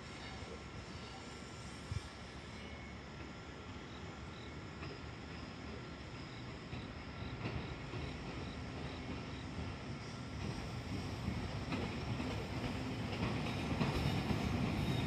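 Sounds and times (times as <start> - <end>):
freight train rumble: 0.0 - 15.0
insect chirping: 2.4 - 12.8.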